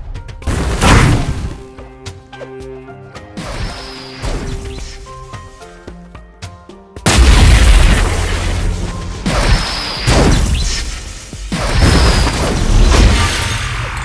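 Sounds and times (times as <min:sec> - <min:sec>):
quiet music: 0:00.1 - 0:11.1
booming explosion blasts: 0:00.5 - 0:01.6, 0:07.1 - 0:14.0.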